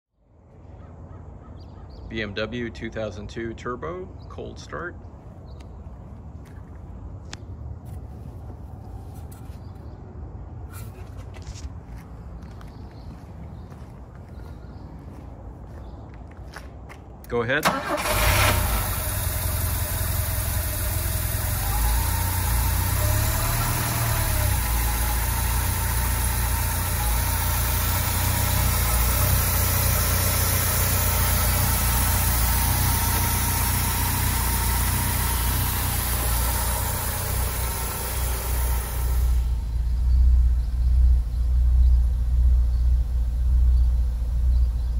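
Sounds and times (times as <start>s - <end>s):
car engine idling: 17.6s - 44.9s.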